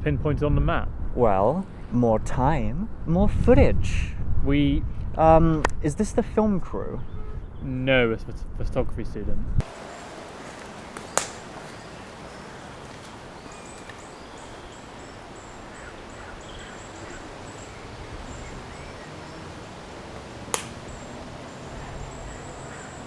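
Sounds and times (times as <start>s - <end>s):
low rumble of wind: 0.0s - 23.0s
faint high bird chirps: 11.0s - 19.6s.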